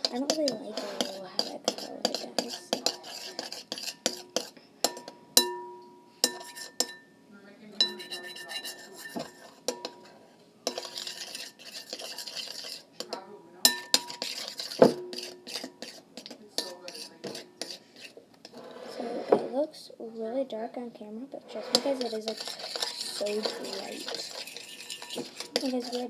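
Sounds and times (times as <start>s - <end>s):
spoon knocking and scraping bowl: 0.0s - 7.2s, 7.8s - 19.6s, 21.5s - 26.0s.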